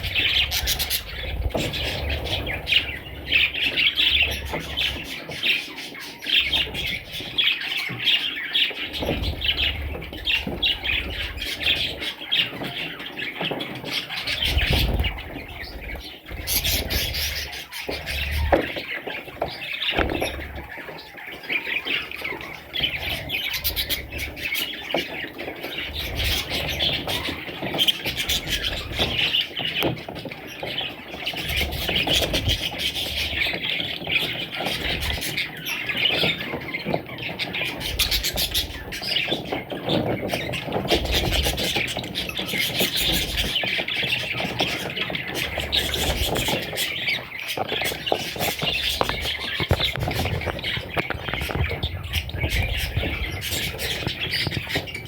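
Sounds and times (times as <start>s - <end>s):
parrots chattering and squawking: 0.0s - 55.0s.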